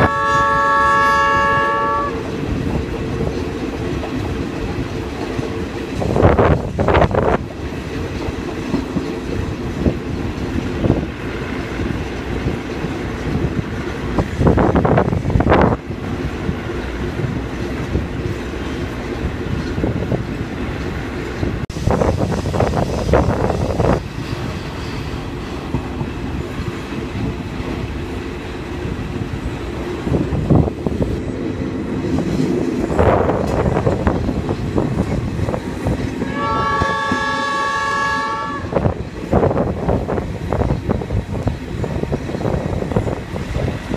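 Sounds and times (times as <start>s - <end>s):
locomotive horn chord: 0.0s - 2.2s, 36.2s - 38.8s
train running on rails: 0.0s - 43.9s
train wheel noise surges: 0.0s - 43.9s.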